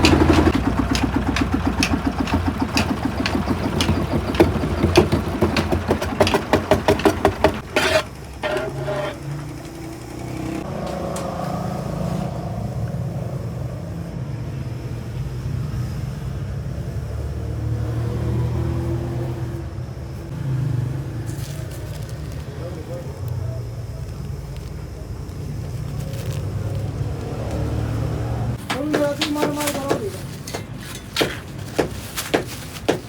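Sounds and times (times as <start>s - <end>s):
machinery knocking: 0.0s - 10.6s, 28.6s - 33.0s
low engine hum: 0.0s - 28.6s.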